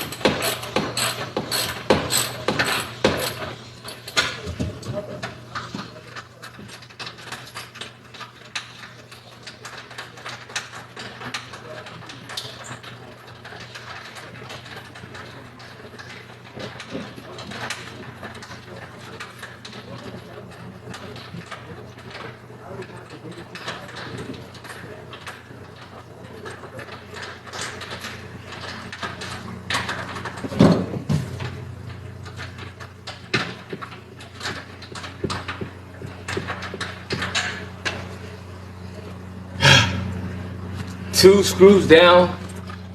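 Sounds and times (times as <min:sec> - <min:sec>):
hand tools clicking and knocking: 0:00.0 - 0:38.5
low hum: 0:27.7 - 0:42.9.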